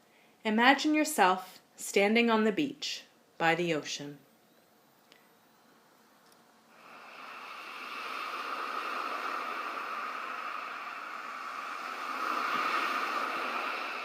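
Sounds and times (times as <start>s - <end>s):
ocean surf hiss: 6.7s - 14.0s.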